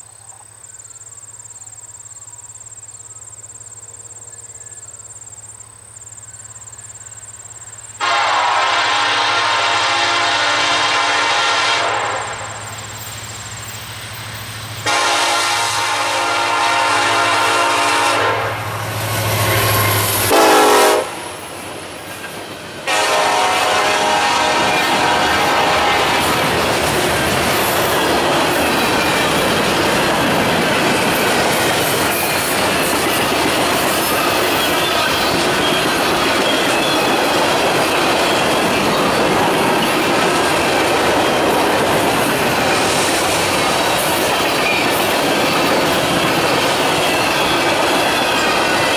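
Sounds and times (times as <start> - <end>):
train wheels rumbling on rail: 5.6 - 48.9
locomotive air horn blasts: 8.0 - 12.6, 14.8 - 21.3, 22.9 - 26.6
high-pitched wheel squeal: 46.0 - 48.9.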